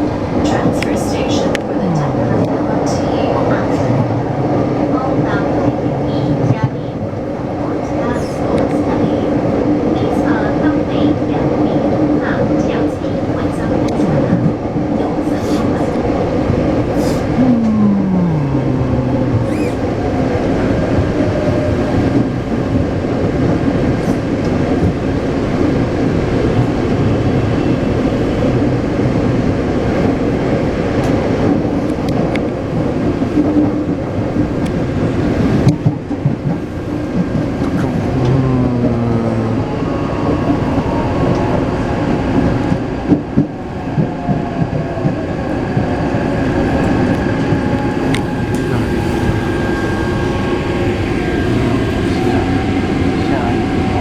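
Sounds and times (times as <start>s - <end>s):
train wheel and running noise: 0.0s - 54.0s
traction motor whine: 17.1s - 21.2s.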